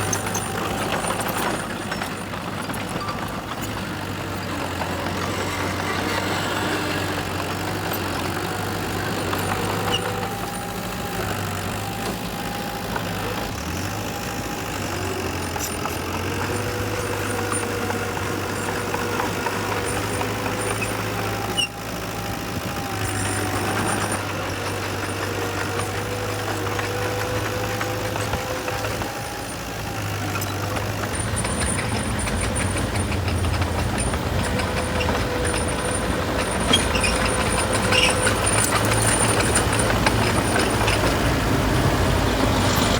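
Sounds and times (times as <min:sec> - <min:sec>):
diesel machinery running: 0:00.0 - 0:42.9.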